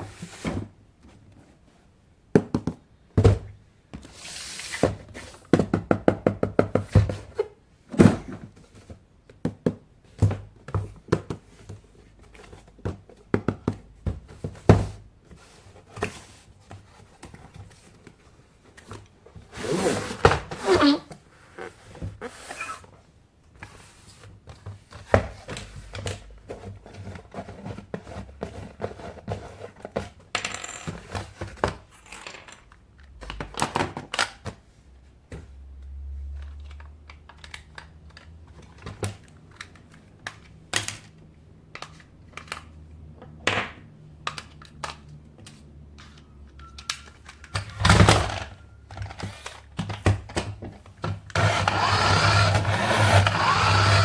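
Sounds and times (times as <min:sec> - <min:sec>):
plastic toys being handled: 0:14.2 - 0:30.3, 0:36.2 - 0:42.8, 0:44.2 - 0:54.0
electric toy motor whirring: 0:51.4 - 0:54.0.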